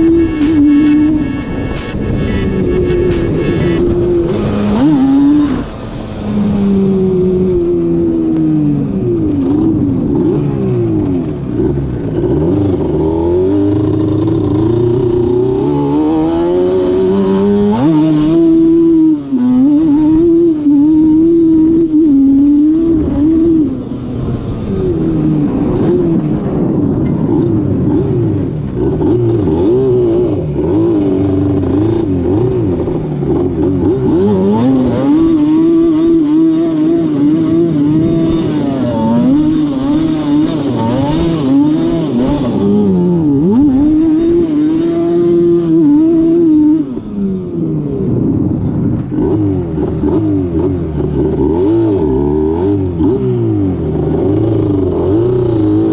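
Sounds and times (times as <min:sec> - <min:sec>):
two-stroke engine revving: 0:00.0 - 0:03.9, 0:27.3 - 0:46.8, 0:49.0 - 0:55.9.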